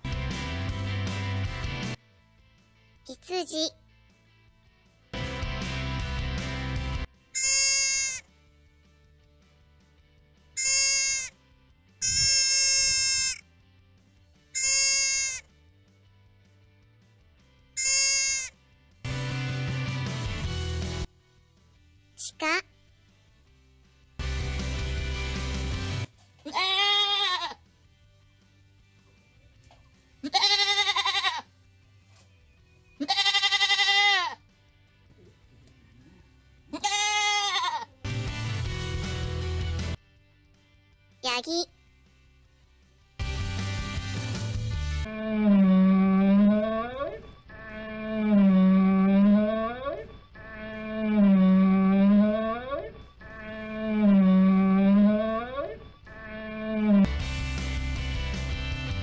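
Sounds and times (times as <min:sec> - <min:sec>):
deer bleating: 0:07.3 - 0:08.3, 0:10.6 - 0:11.4, 0:12.0 - 0:13.5, 0:14.5 - 0:15.5, 0:17.8 - 0:18.6, 0:26.4 - 0:27.6, 0:30.2 - 0:31.5, 0:33.0 - 0:34.4, 0:35.7 - 0:38.0, 0:45.0 - 0:57.1.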